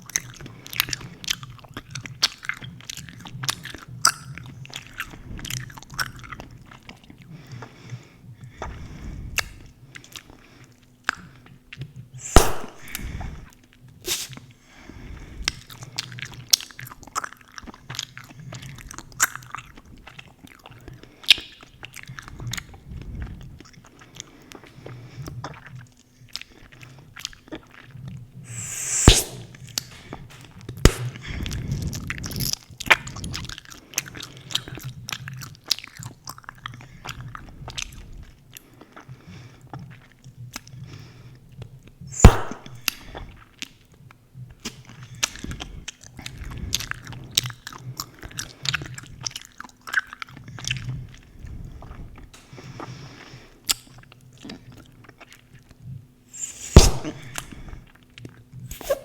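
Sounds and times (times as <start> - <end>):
gum bubble popping: 12.2 - 13.2, 30.9 - 31.2.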